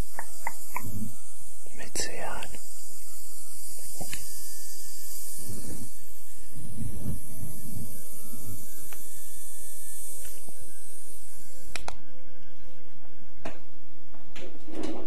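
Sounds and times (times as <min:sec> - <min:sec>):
soft hiss: 0:00.0 - 0:12.0.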